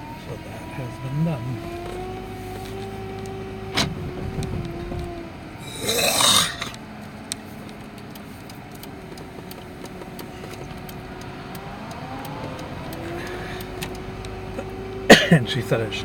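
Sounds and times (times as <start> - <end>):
car engine humming: 0.0 - 16.0
rising whine: 10.6 - 15.0.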